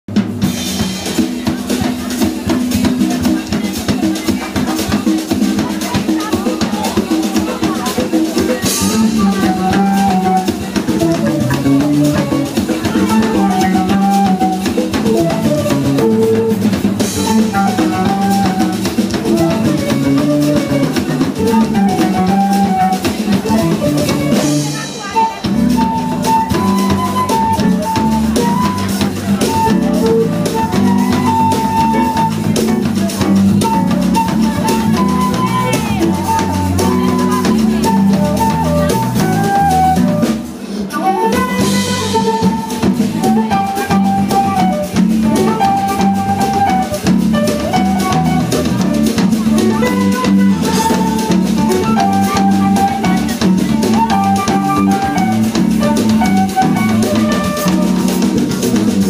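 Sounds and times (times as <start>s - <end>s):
drum kit: 0.1s - 59.0s
live band playing: 0.1s - 59.0s
electric bass: 8.6s - 24.6s, 25.5s - 40.3s, 41.6s - 59.0s.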